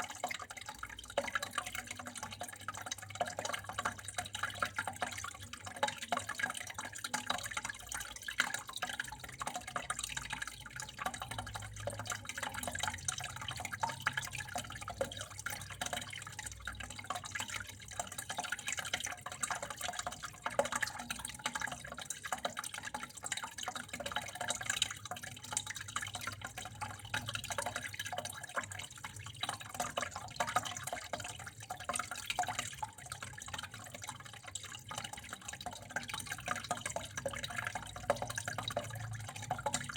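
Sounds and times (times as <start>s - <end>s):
water running with drips: 0.0s - 39.9s.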